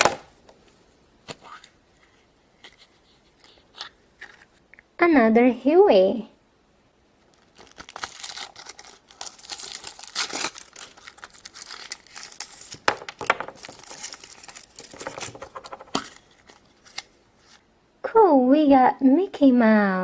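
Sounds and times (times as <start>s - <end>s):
plastic wrapping crinkling and tearing: 7.2s - 17.6s.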